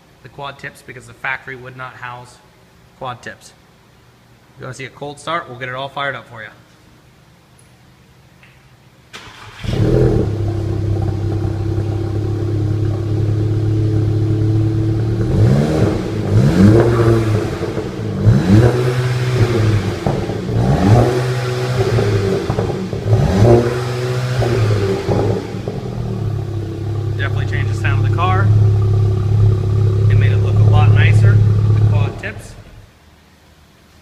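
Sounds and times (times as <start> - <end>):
car engine idling and revving: 9.3 - 32.9.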